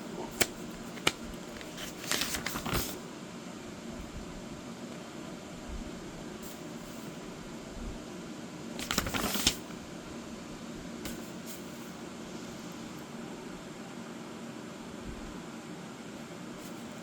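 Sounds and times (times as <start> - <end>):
fan-like hum: 0.0 - 17.0
paper page rustling: 0.2 - 3.0, 8.8 - 9.8.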